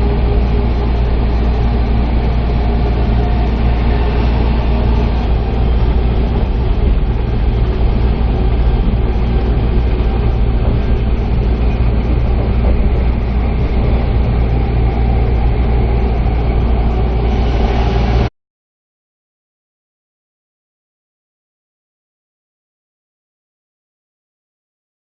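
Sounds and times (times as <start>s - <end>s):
wheels rumbling on rail: 0.0s - 18.3s.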